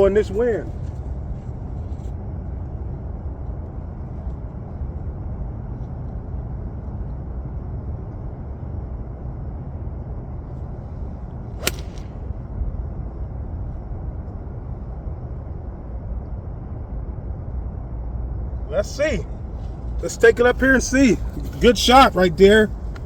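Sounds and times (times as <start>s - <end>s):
golf club striking ball: 11.6s - 12.3s.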